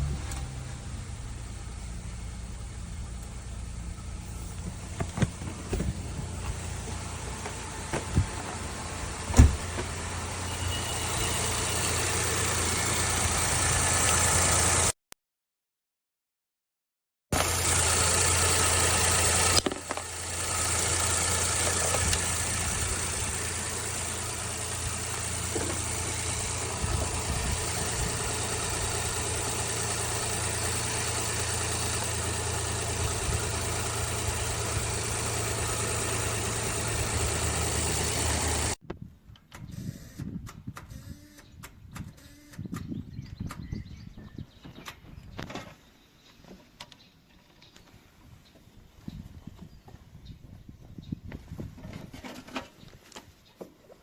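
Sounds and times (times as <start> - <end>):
motor-driven machine running: 17.4 - 38.8.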